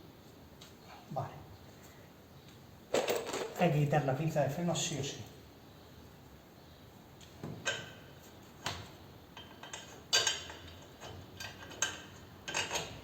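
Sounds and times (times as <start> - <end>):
metal tools clinking: 2.9 - 3.6.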